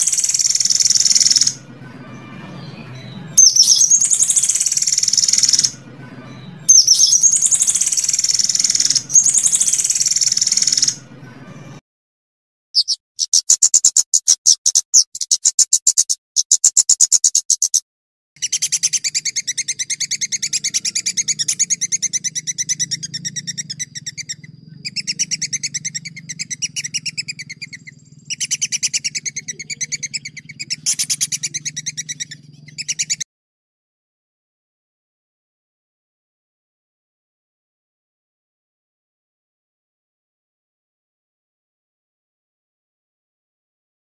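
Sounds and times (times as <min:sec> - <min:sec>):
songbird chirps and trill: 0:00.0 - 0:11.8, 0:12.8 - 0:17.8, 0:18.4 - 0:33.3
faint low hum: 0:18.5 - 0:33.2.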